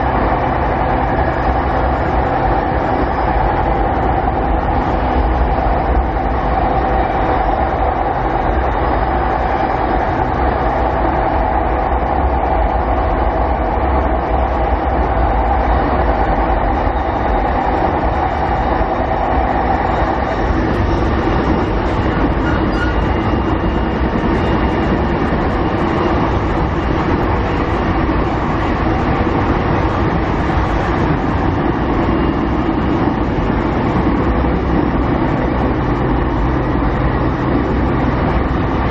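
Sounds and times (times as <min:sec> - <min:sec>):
electric train motor hum: 0:00.0 - 0:38.9
train wheel and rail noise: 0:00.0 - 0:38.9.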